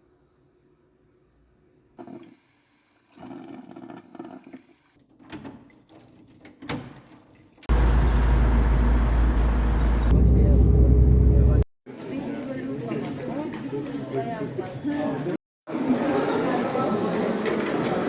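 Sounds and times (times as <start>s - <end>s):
objects clinking and rustling: 5.7s - 7.7s
loud traffic noise: 7.7s - 11.6s.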